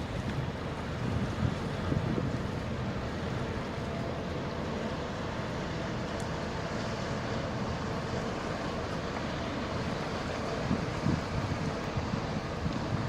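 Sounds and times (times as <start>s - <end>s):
wind on microphone: 0.0s - 3.5s, 10.4s - 13.0s
ship diesel engines rumbling: 0.0s - 13.0s
water moving past ship: 0.0s - 13.0s.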